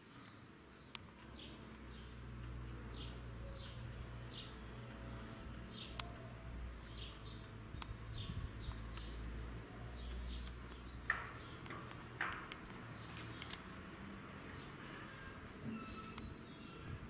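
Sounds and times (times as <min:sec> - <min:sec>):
small birds chirping: 0:00.0 - 0:17.0
sharp clicks: 0:00.9 - 0:09.3, 0:10.4 - 0:14.0.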